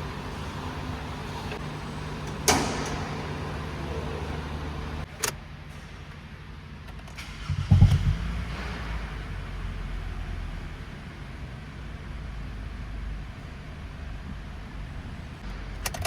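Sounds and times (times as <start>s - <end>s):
car engine humming: 0.0s - 5.1s, 7.2s - 16.0s
low rumble: 7.3s - 9.6s
sharp knock: 7.6s - 8.4s.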